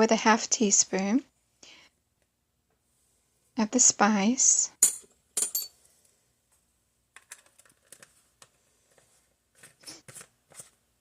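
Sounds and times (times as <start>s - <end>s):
kitchen items clicking and rustling: 7.2s - 10.8s.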